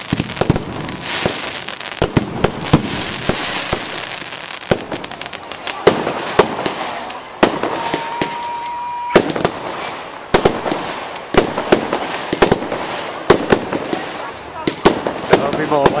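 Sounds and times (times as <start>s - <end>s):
fireworks bangs: 0.0s - 16.0s
fireworks crackling: 0.0s - 16.0s
firework whistle: 7.4s - 9.9s.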